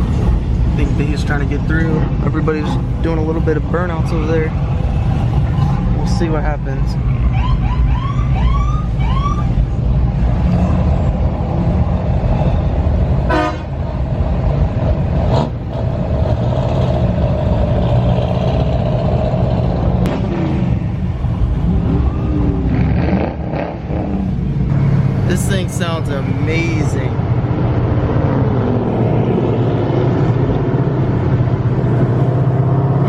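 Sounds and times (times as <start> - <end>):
car engines rumbling: 0.0 - 33.0
car horn honks: 13.3 - 13.7
long car horn tone: 13.3 - 13.8.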